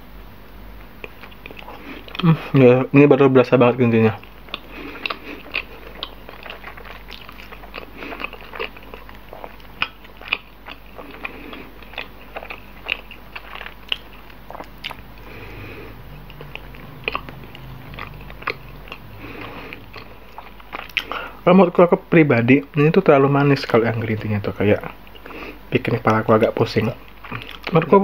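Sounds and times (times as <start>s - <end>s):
chewing soft bread: 0.8s - 2.6s, 3.7s - 22.0s, 22.6s - 28.0s.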